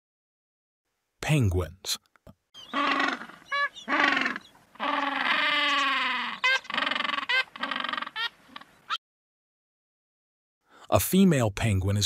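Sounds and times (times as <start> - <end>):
penguins calling: 2.6 - 9.0.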